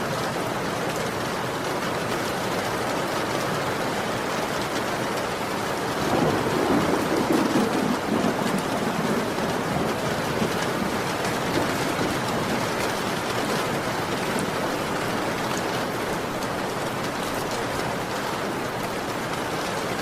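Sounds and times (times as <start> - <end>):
heavy rain falling: 0.0 - 20.0
thunder rumble: 5.9 - 15.7.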